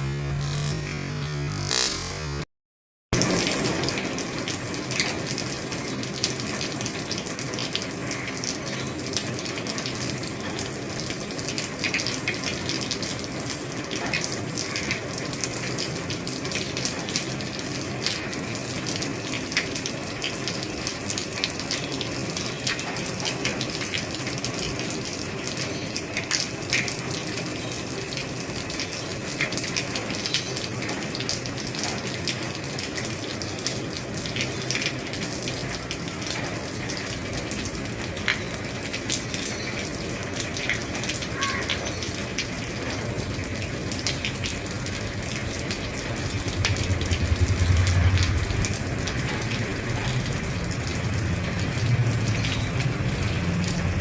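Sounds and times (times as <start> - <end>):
raindrops ticking on roofing: 3.1 - 54.0
heavy rain hissing: 42.0 - 54.0.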